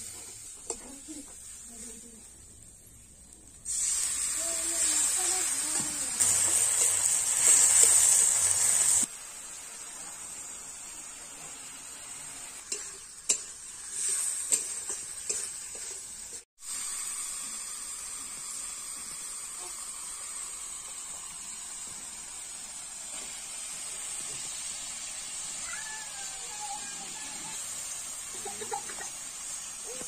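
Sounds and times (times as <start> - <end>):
food sizzling in hot oil: 0.0 - 30.0
spatula scraping a pan: 12.6 - 16.4.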